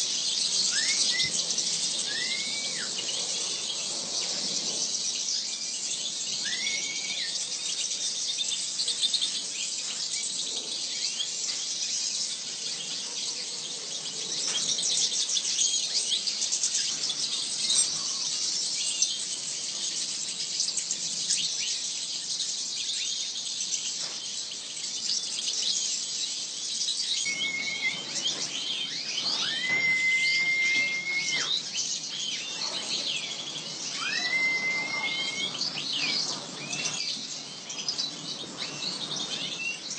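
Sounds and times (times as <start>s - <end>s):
small birds chirping: 0.0s - 39.9s
bird long rising whistle: 0.6s - 3.8s, 5.4s - 7.5s, 27.1s - 37.0s.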